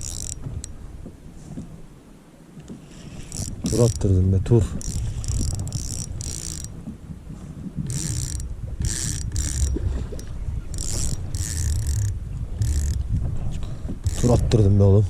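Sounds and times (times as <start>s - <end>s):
fishing reel ratcheting: 0.0s - 0.8s, 2.8s - 4.2s, 4.8s - 6.8s, 7.9s - 13.1s, 14.0s - 14.6s.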